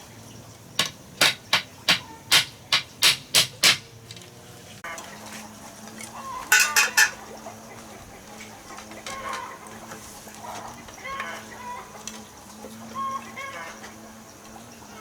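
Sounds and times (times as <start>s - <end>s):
sharp knocks: 0.8s - 3.9s
chickens clucking: 4.8s - 15.0s.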